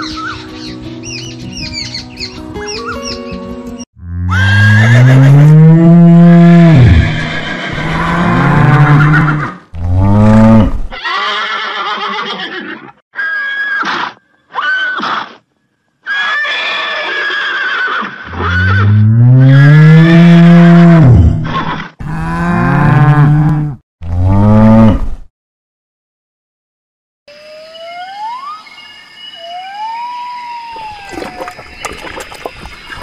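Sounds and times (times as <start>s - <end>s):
cow mooing: 4.0s - 10.8s, 22.0s - 25.0s
horse whinnying: 4.3s - 5.4s, 6.4s - 9.6s, 10.9s - 15.4s, 16.1s - 19.1s.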